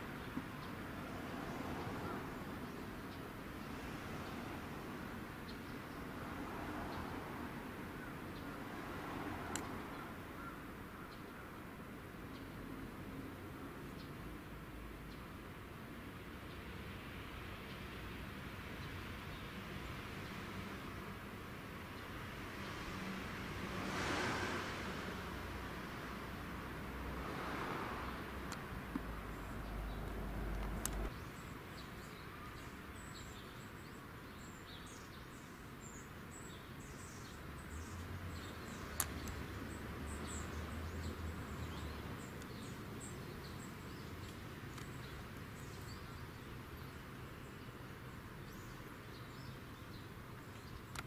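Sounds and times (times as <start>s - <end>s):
small birds chirping: 0.0s - 7.1s, 12.2s - 16.8s, 28.0s - 51.0s
sharp clicks: 30.0s - 31.1s, 38.9s - 39.4s.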